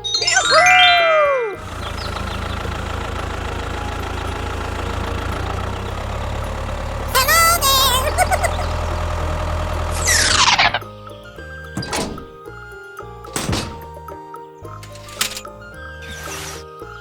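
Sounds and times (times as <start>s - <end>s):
small engine idling: 1.6s - 10.9s.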